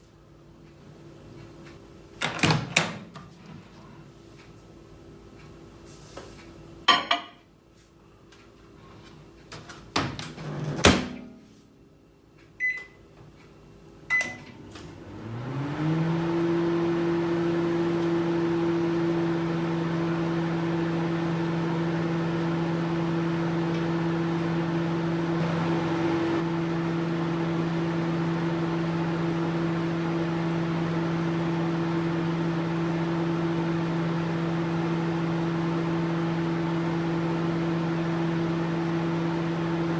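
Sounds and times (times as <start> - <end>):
microwave oven humming: 8.2 - 39.9.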